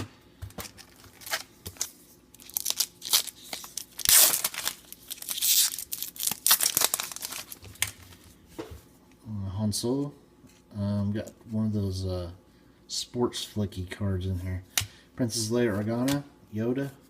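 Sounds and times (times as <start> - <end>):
card pack wrapper tearing: 0.7 - 8.0.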